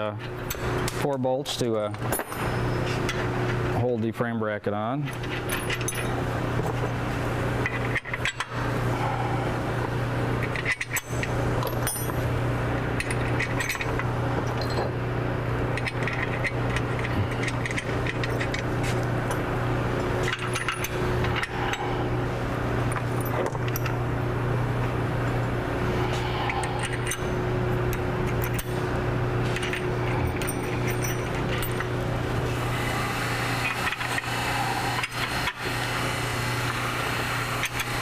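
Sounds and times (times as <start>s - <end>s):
steady low hum: 0.0s - 38.0s
metal bolts clinking: 5.1s - 6.2s, 10.4s - 12.3s, 13.0s - 14.9s, 15.7s - 19.5s, 20.2s - 21.8s, 22.9s - 24.0s, 27.9s - 28.8s, 29.4s - 32.0s.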